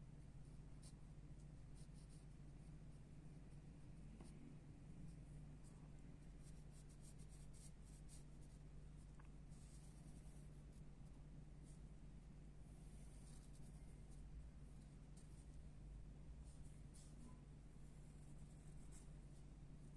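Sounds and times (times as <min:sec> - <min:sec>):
steady low hum: 0:00.0 - 0:19.9
pencil scratching on paper: 0:06.4 - 0:08.6, 0:09.5 - 0:10.8, 0:12.7 - 0:14.2, 0:16.4 - 0:19.1.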